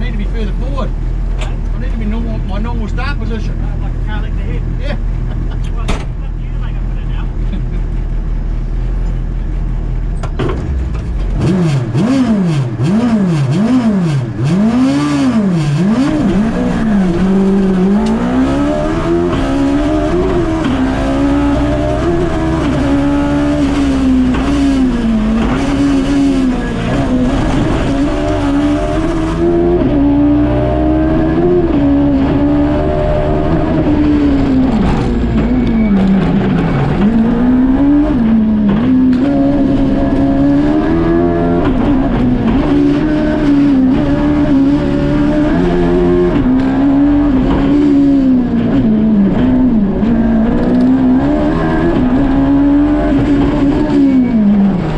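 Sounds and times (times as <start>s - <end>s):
motorcycle engine revving: 10.7s - 54.9s.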